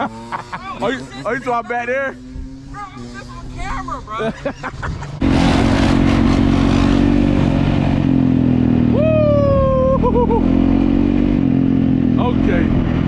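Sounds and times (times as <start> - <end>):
dirt bike engine revving high: 0.0 - 13.0
person whooping: 8.9 - 10.5.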